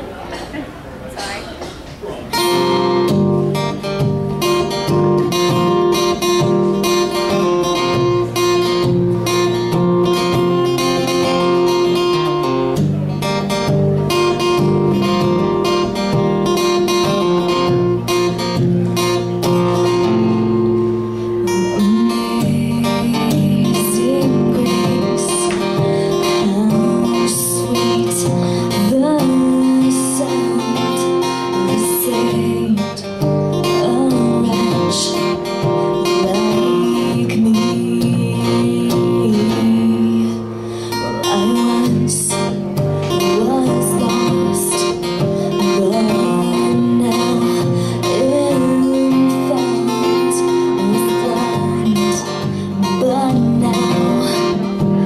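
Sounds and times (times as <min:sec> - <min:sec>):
acoustic guitar strumming: 0:02.3 - 0:55.0
person singing: 0:19.9 - 0:55.0.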